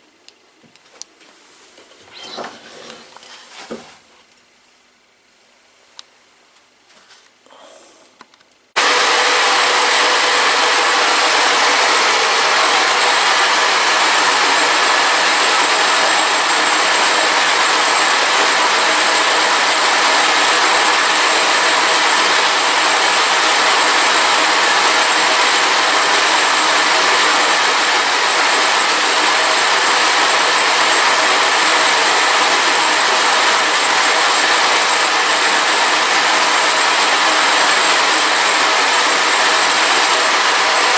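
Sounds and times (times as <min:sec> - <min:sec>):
workshop machine hissing: 0:02.0 - 0:03.9, 0:08.8 - 0:40.9.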